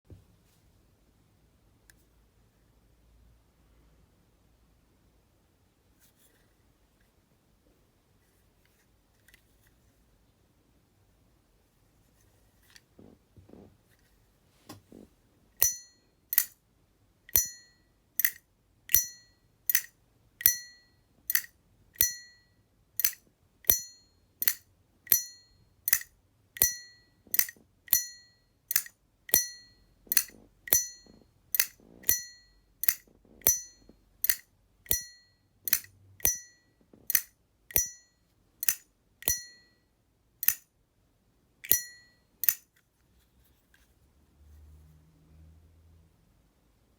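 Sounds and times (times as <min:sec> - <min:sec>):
lighter lid clicking open and shut: 0:19.7 - 0:20.6, 0:21.3 - 0:22.2, 0:25.9 - 0:28.0, 0:30.1 - 0:30.9, 0:31.5 - 0:35.1, 0:38.6 - 0:39.5, 0:40.4 - 0:40.6.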